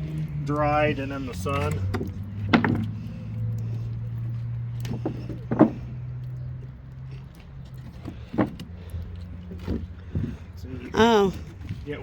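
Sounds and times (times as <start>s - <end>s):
low engine hum: 0.0s - 12.0s
short knocks: 2.4s - 3.0s.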